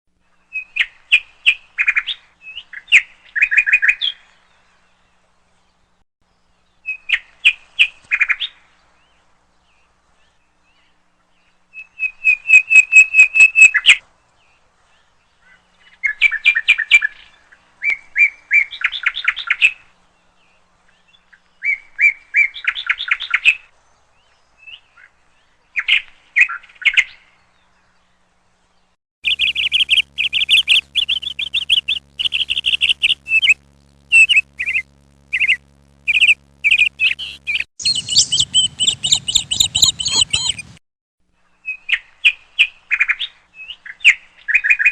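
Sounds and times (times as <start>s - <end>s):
bird chirping: 29.2s - 40.8s.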